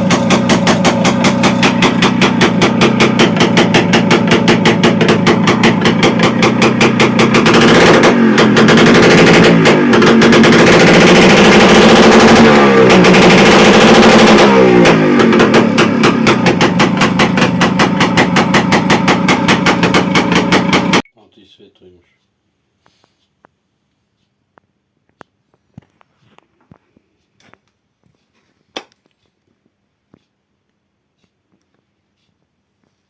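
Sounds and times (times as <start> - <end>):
two-stroke engine idling and revving: 0.0 - 21.0.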